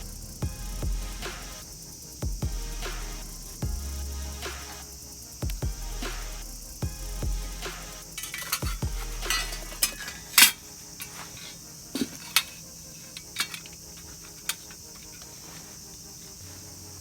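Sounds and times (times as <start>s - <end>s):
metallic clinks of hand tools: 8.2s - 11.2s, 12.0s - 15.2s.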